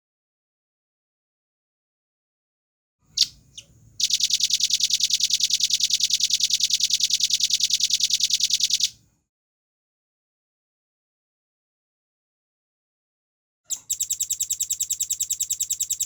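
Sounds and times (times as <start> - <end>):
bird singing a fast trill: 3.1 - 9.0.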